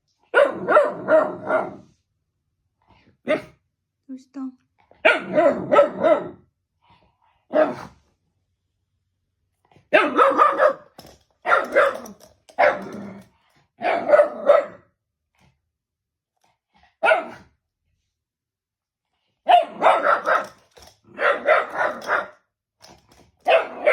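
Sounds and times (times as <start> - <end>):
dog barking: 0.3 - 1.9, 3.2 - 3.6, 5.0 - 6.4, 9.9 - 13.0, 13.8 - 14.9, 17.0 - 17.5, 19.4 - 22.4, 23.4 - 23.9.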